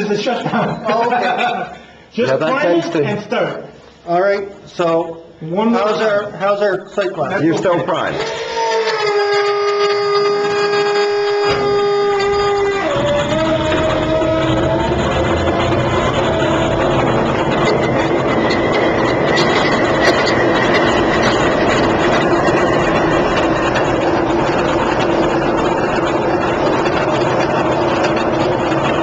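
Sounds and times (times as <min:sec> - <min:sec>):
steady whine: 0:00.0 - 0:29.0
diesel locomotive idling: 0:09.8 - 0:29.0.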